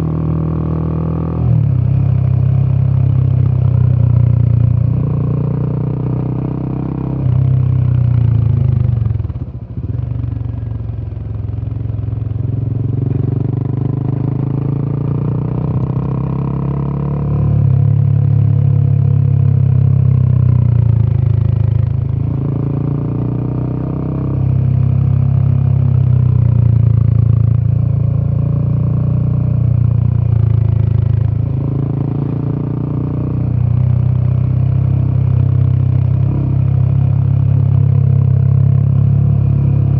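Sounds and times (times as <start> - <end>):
motorcycle engine revving: 12.1 - 39.9.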